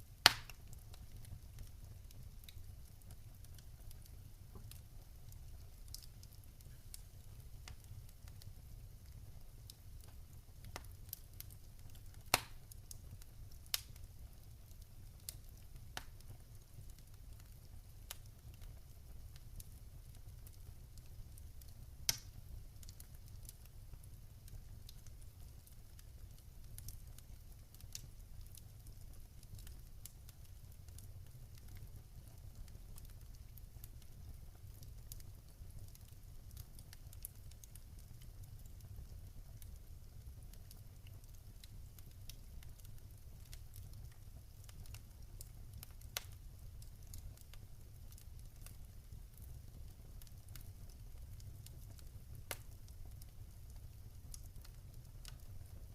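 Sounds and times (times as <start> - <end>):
wood fire crackling: 0.0 - 55.9
sharp fire pops: 0.2 - 0.6, 12.3 - 13.0, 22.1 - 22.3.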